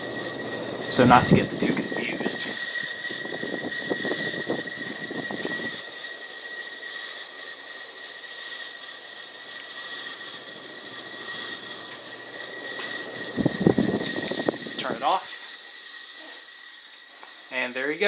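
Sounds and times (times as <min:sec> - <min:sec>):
ceiling fan whining and whirring: 0:00.0 - 0:18.0.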